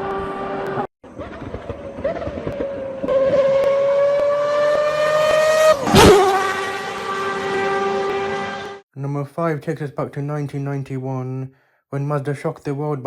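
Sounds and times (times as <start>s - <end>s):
rotary engine at high revs: 0.0s - 8.8s.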